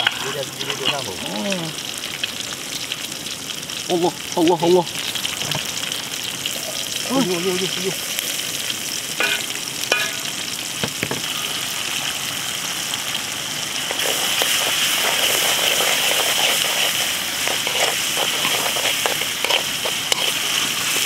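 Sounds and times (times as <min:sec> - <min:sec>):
food sizzling in hot oil: 0:00.0 - 0:21.0
oil popping: 0:13.8 - 0:21.0.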